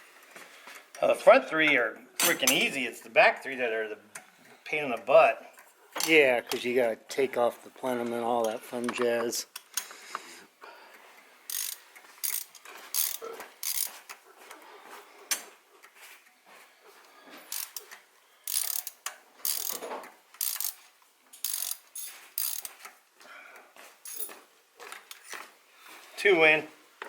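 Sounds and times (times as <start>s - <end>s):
socket ratchet clicking: 11.5s - 13.9s, 17.5s - 17.9s, 18.5s - 19.8s, 20.4s - 20.8s, 21.4s - 22.7s.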